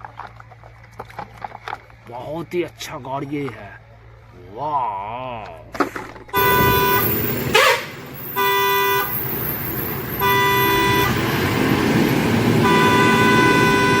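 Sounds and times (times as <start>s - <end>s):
rumbling traffic noise: 0.0s - 14.0s
vehicle horn honking: 6.3s - 14.0s.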